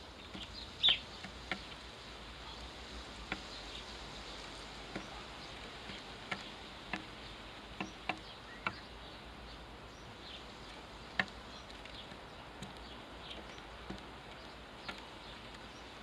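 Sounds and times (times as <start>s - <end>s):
small birds chirping: 0.0s - 16.0s
steady hiss: 0.0s - 16.0s
bird pecking seed: 10.6s - 15.8s.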